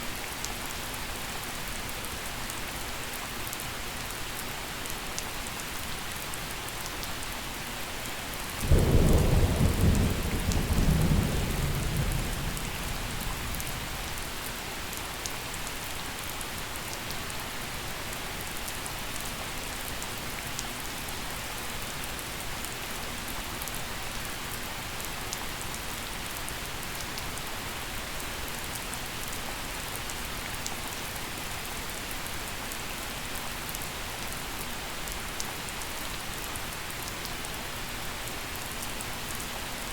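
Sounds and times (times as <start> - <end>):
gentle rain falling: 0.0 - 39.9
thunderclap rumble: 8.7 - 14.2.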